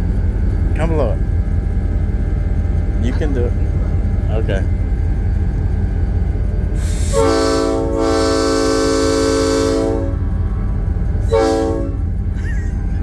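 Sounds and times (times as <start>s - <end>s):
locomotive engine idling: 0.0s - 13.0s
locomotive air horn chord: 6.8s - 10.4s, 11.2s - 12.2s.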